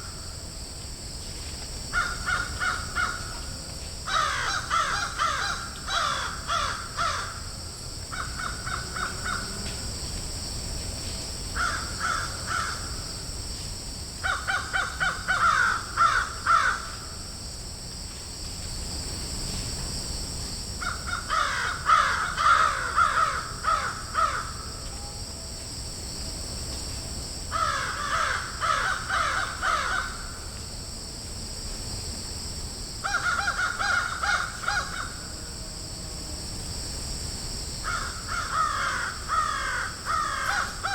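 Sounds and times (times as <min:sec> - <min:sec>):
high background hiss: 0:00.0 - 0:40.9
crows cawing: 0:01.9 - 0:03.3, 0:04.1 - 0:07.4, 0:08.1 - 0:09.5, 0:11.6 - 0:12.9, 0:14.2 - 0:17.0, 0:20.8 - 0:24.6, 0:27.5 - 0:30.4, 0:33.0 - 0:35.3, 0:37.8 - 0:40.9.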